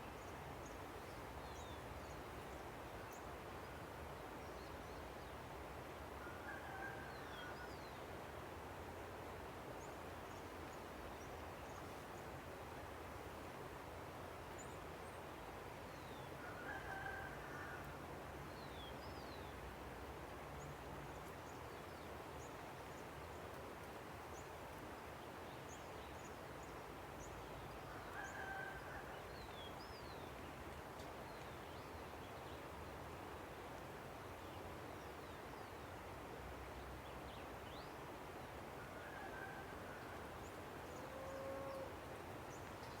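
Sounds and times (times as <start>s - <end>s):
rooster crowing: 38.9s - 40.4s.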